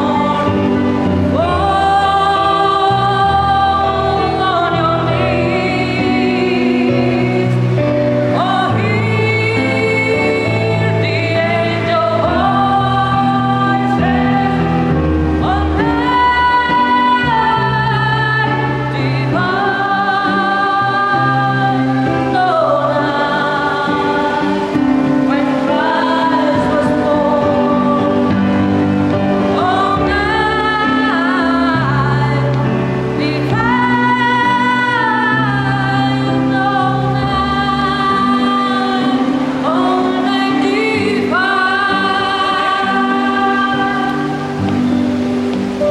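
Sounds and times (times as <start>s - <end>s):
children's choir singing: 0.0s - 45.9s.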